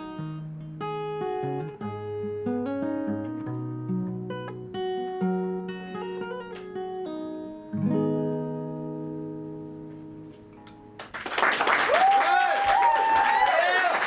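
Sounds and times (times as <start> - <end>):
acoustic guitar strumming: 0.0 - 11.0
audience applause: 11.0 - 14.0.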